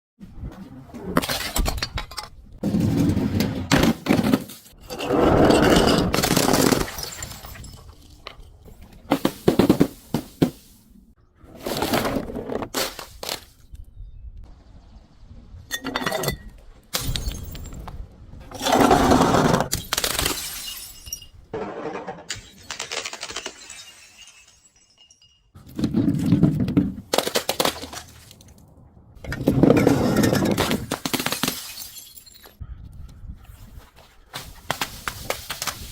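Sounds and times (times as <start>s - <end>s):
glass shattering and crunching: 5.9s - 8.5s, 15.8s - 18.0s, 19.7s - 21.5s, 22.3s - 25.6s, 29.6s - 32.6s.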